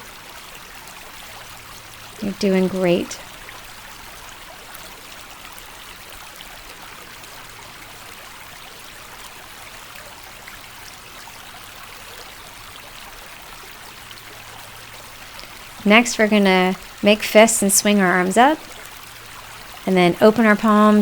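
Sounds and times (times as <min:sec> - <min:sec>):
creek water running: 0:00.0 - 0:21.0.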